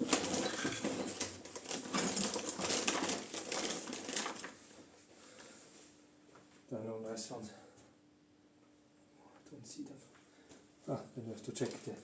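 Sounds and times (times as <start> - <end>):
small hard objects clattering: 0.0 - 4.6.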